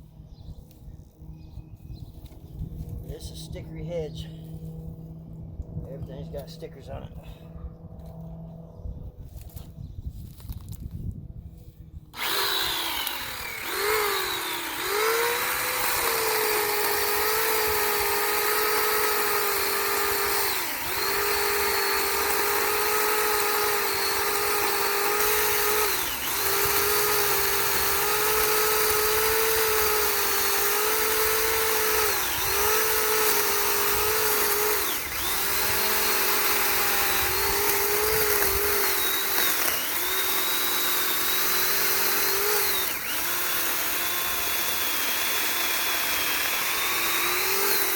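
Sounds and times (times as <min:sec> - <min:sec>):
electric chainsaw cutting branches: 0:12.1 - 0:47.9.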